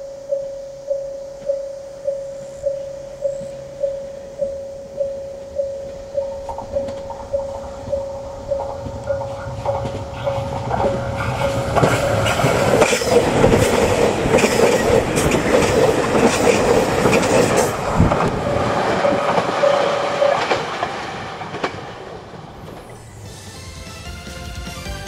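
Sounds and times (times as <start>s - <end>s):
bell-like ding: 0.3s - 11.0s
diesel train engine: 2.2s - 25.0s
wheels clacking over rail joints: 6.4s - 23.1s.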